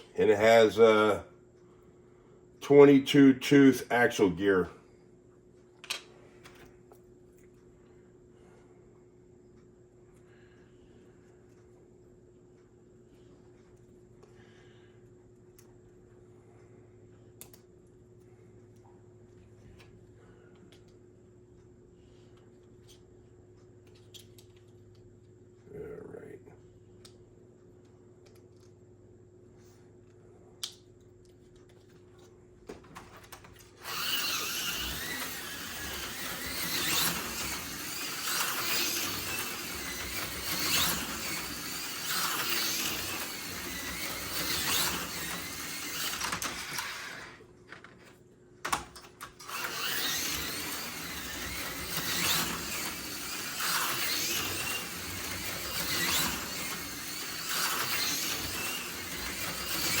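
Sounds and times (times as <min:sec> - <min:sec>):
slot car motor whining: 0:33.6 - 0:47.5, 0:49.0 - 1:00.0.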